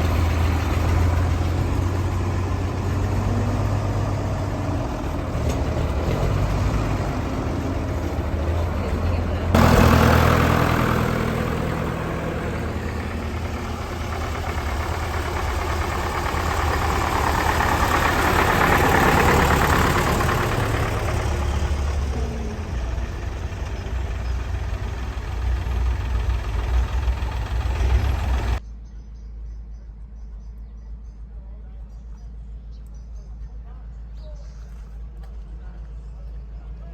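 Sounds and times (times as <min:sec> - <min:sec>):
tractor engines idling: 0:00.0 - 0:28.6.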